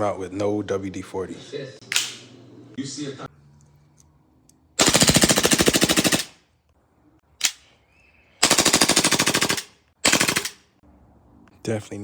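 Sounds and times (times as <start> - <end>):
single sharp crack: 1.9 - 2.3
airsoft pistol rapid bursts: 4.8 - 6.4, 8.4 - 10.6.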